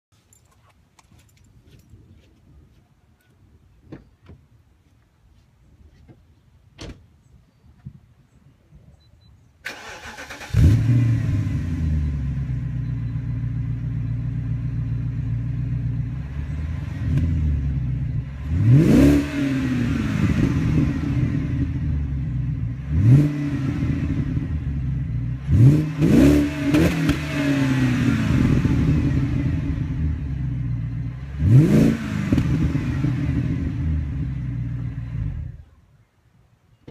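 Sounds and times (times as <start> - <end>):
car engine starting and revving: 9.6 - 35.6.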